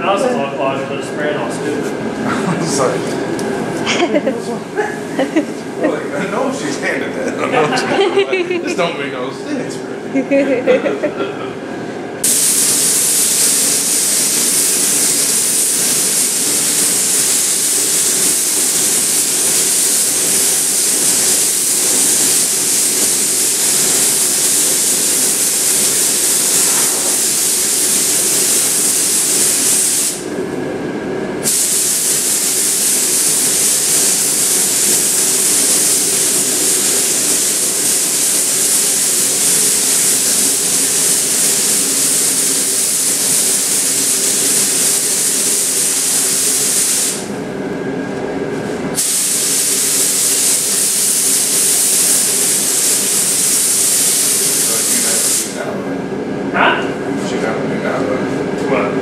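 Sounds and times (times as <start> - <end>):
paint spray gun hissing: 12.2 - 30.3, 31.4 - 47.3, 49.0 - 55.6.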